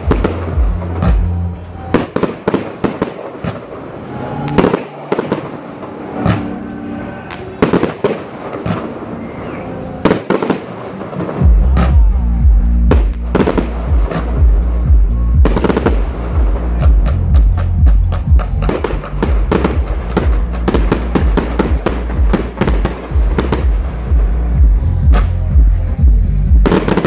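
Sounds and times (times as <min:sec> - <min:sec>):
music with heavy bass beat: 0:00.0 - 0:03.0, 0:11.2 - 0:27.0
fireworks bangs and crackle: 0:00.0 - 0:27.0.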